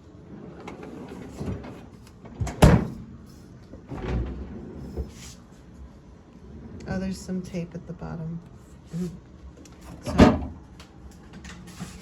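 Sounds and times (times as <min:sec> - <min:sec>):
plastic drawers sliding: 0:00.3 - 0:03.0, 0:03.8 - 0:05.4.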